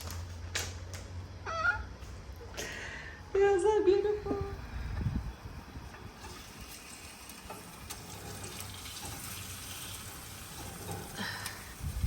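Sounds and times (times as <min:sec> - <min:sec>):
water running from a tap: 0:06.2 - 0:12.0.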